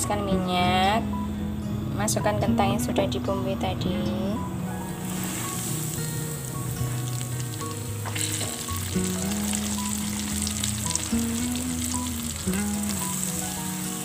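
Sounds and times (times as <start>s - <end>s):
potatoes sizzling in hot oil: 5.0s - 14.0s.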